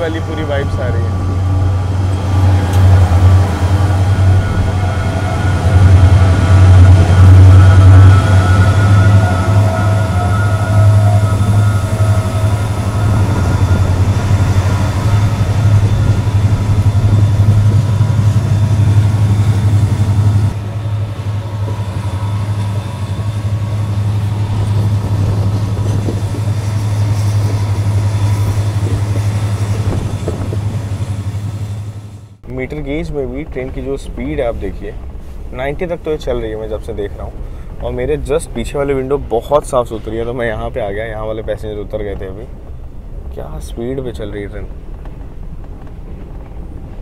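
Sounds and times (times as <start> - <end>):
train engine drone: 0.0 - 47.0
train wheels rumbling on rails: 0.0 - 47.0.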